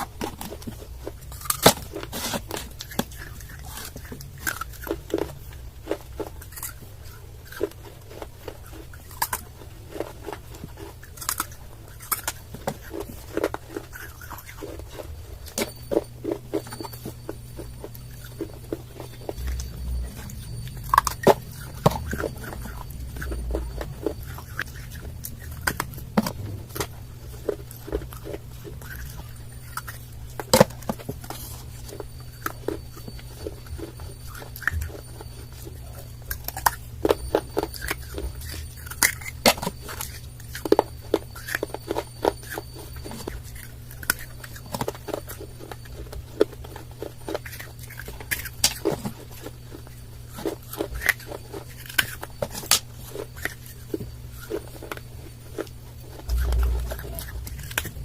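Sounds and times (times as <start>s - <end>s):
chewing crunchy clay: 0.0s - 58.0s
steady low hum: 0.0s - 58.0s.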